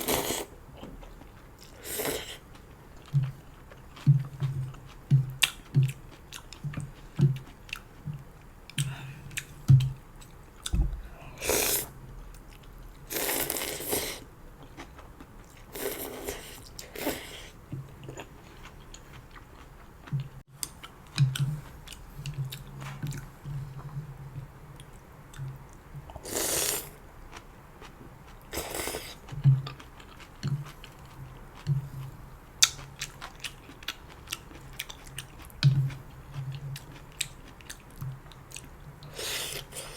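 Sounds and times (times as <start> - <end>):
slurping noodles and broth: 0.0 - 0.6, 1.7 - 2.4, 11.4 - 11.9, 13.1 - 14.3, 15.7 - 17.6, 26.2 - 27.0, 28.5 - 29.2, 39.1 - 39.9
chewing with wet mouth clicks: 0.8 - 10.8, 18.0 - 23.3, 32.6 - 38.8.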